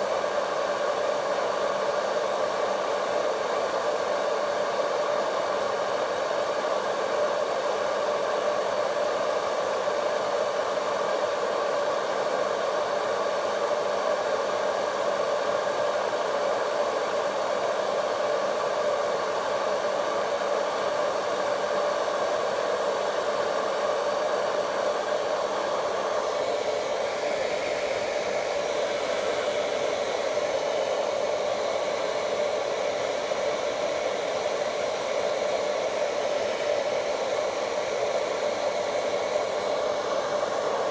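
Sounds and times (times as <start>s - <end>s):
hair dryer running: 0.0s - 40.9s.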